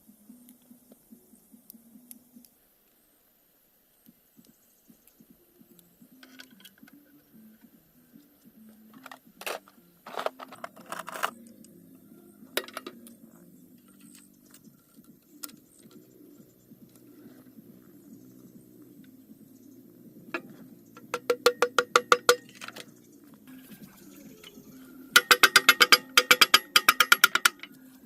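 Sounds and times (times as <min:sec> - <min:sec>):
faint low hum: 0:00.0 - 0:21.2
sharp clicks and clinks: 0:20.4 - 0:23.0, 0:24.4 - 0:28.0.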